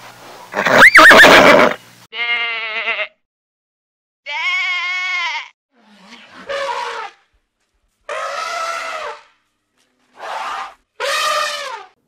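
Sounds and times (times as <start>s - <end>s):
horse whinnying: 0.6s - 1.8s
goat bleating: 2.1s - 3.2s, 4.3s - 5.5s.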